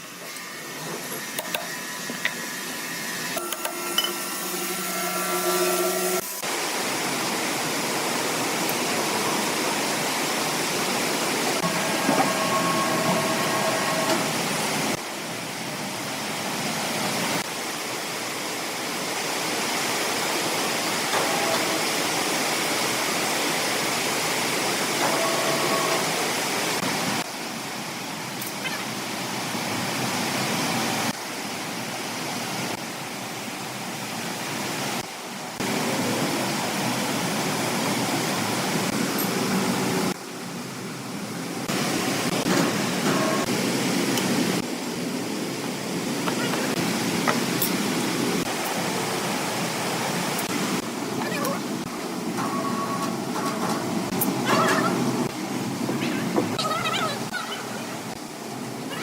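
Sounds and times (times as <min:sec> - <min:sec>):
woodworking machinery rushing: 0:11.5 - 0:15.0
faint machine whines: 0:11.6 - 0:15.0.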